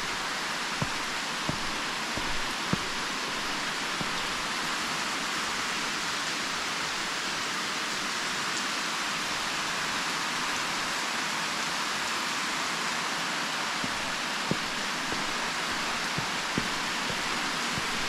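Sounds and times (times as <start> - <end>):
waterfall rushing: 0.0 - 7.8, 13.6 - 18.0.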